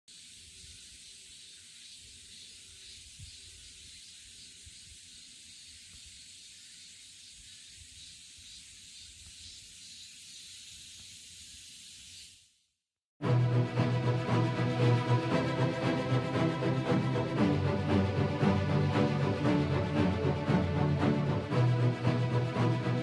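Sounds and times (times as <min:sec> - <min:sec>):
faint steady hiss: 0:00.1 - 0:12.7.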